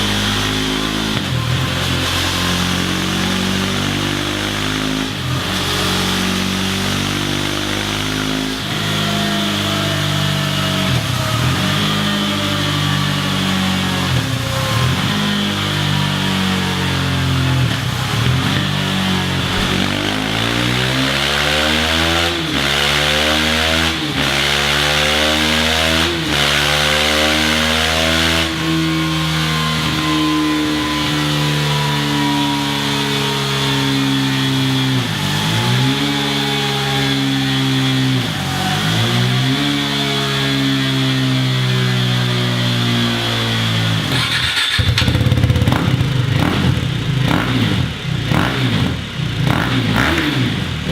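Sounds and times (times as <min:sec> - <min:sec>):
motorcycle engine running: 0:00.0 - 0:23.3, 0:43.8 - 0:50.9
motorcycle engine idling: 0:16.9 - 0:21.0, 0:44.4 - 0:50.0.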